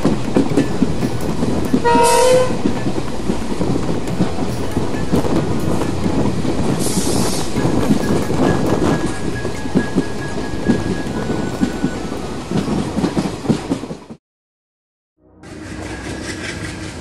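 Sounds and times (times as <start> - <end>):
train rumbling on rails: 0.0 - 14.2, 15.3 - 17.0
train horn blast: 1.8 - 2.6.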